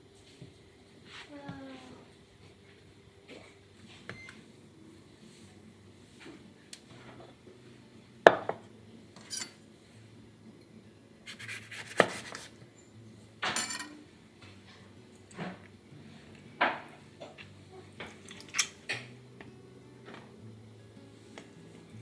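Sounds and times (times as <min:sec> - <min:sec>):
dishes and utensils clinking: 0:08.3 - 0:09.6, 0:13.4 - 0:15.7, 0:16.6 - 0:19.2.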